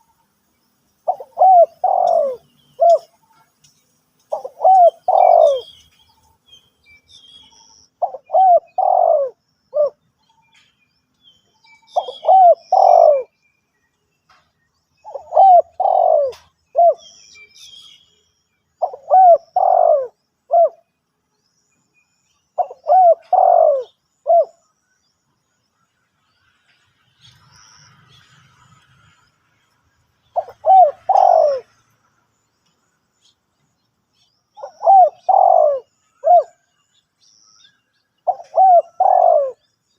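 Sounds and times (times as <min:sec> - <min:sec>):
small birds chirping: 0:00.0 - 0:39.9
dove cooing: 0:01.0 - 0:03.2, 0:04.3 - 0:05.8, 0:08.0 - 0:10.0, 0:12.0 - 0:13.3, 0:15.0 - 0:17.1, 0:18.8 - 0:20.8, 0:22.6 - 0:24.6, 0:30.4 - 0:31.8, 0:34.6 - 0:36.7, 0:38.2 - 0:39.6.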